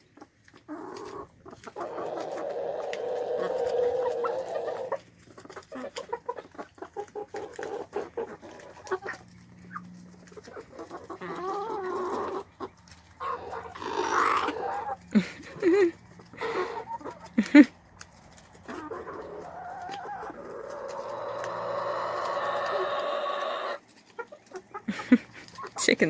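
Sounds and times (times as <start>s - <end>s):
chickens clucking: 0.0s - 26.0s
squawky chicken calls: 0.7s - 6.4s, 7.1s - 17.7s, 18.6s - 25.7s.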